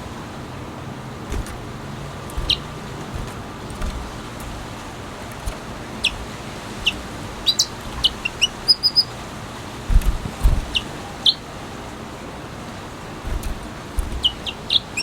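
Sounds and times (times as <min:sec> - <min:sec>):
low thumps: 0:01.3 - 0:08.6, 0:09.9 - 0:10.9, 0:13.3 - 0:14.6.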